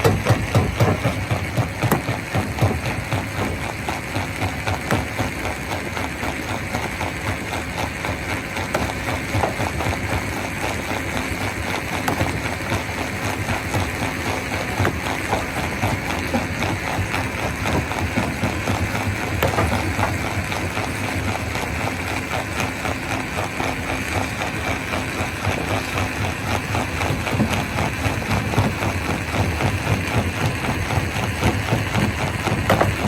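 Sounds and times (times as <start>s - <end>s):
rock crushing clatter: 0.0s - 5.1s, 11.5s - 22.8s, 24.4s - 33.0s
stone crusher drone: 0.0s - 33.0s.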